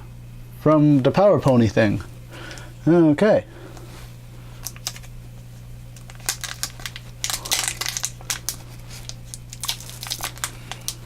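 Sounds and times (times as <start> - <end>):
plastic foil wrapper crinkling: 4.6 - 5.2, 5.9 - 11.0.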